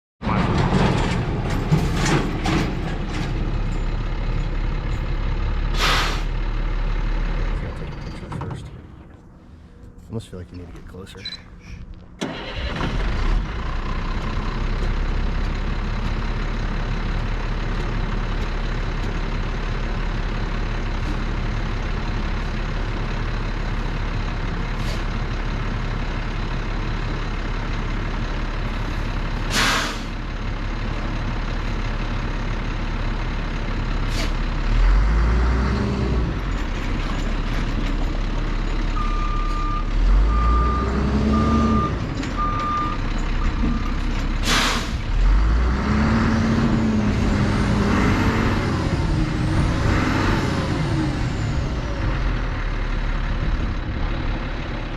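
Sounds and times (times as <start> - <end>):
diesel truck engine: 0.2 - 54.9
air brake hiss: 5.7 - 6.3, 29.5 - 30.2, 34.1 - 34.4, 44.4 - 45.0
reversing beeps: 11.1 - 11.7, 39.0 - 43.9.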